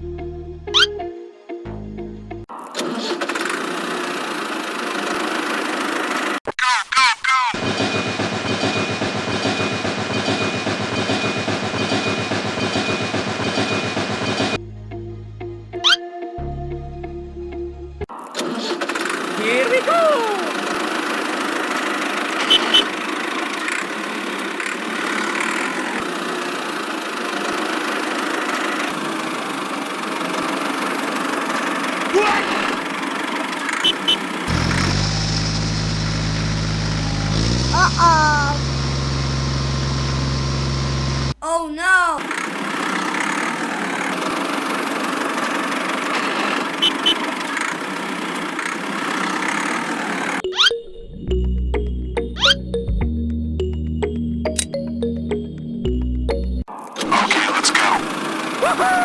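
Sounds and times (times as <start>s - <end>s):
small engine running: 2.8s - 6.4s, 7.6s - 14.6s, 18.4s - 38.0s, 38.6s - 41.4s, 42.3s - 50.4s, 57.5s - 58.7s
small engine idling: 20.5s - 37.8s, 38.6s - 41.4s
short high beeps: 22.5s - 22.9s, 33.8s - 34.2s.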